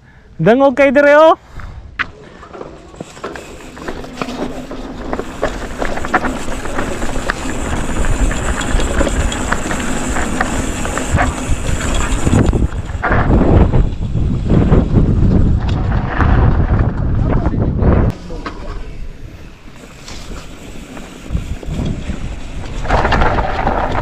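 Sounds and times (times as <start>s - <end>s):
bike clicking and rattling: 2.0s - 24.0s
bike tyres skidding on dirt: 2.6s - 17.2s, 19.4s - 24.0s.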